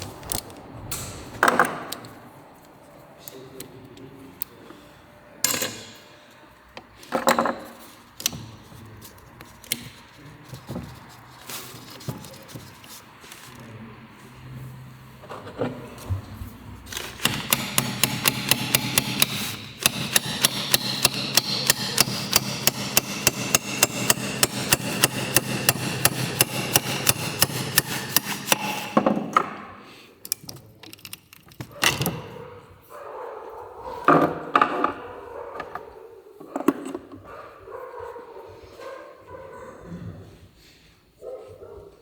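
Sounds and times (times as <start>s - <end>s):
hammer blows on metal: 17.2s - 29.3s.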